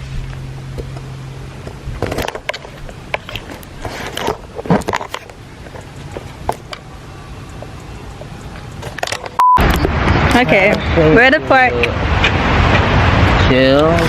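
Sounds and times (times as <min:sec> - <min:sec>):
steady low hum: 0:00.0 - 0:14.0
handling clicks knocks and rustles: 0:00.7 - 0:06.9, 0:07.5 - 0:09.4.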